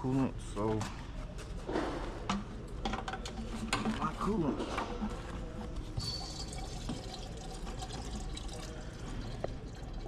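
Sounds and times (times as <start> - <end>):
liquid pouring: 6.1 - 10.0.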